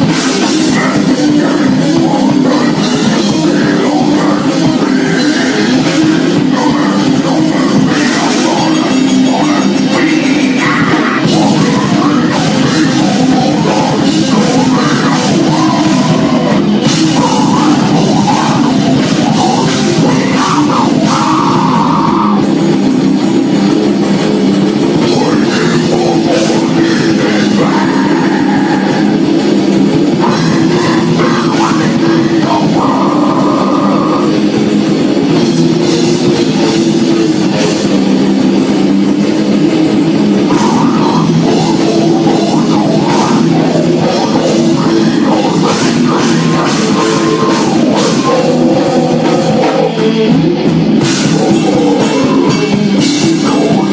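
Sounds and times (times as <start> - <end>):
distorted electric guitars: 0.0 - 53.9
drum kit: 0.0 - 53.9
heavy rock band playing: 0.0 - 53.9.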